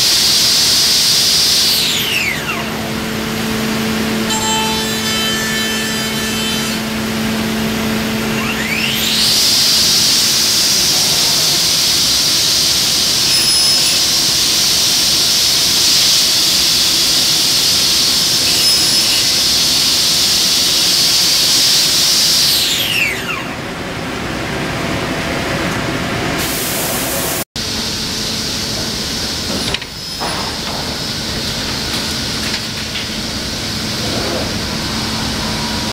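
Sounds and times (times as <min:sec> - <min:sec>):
machine running noise: 0:00.0 - 0:35.9
router spindle whining: 0:00.3 - 0:05.0, 0:06.6 - 0:23.8, 0:29.7 - 0:35.9.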